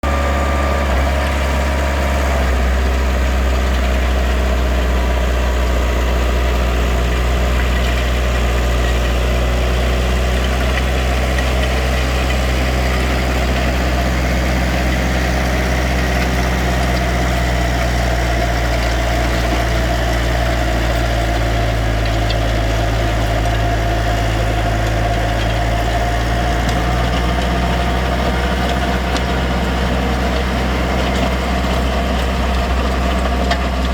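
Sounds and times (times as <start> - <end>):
farm machine engine droning: 0.0 - 33.9.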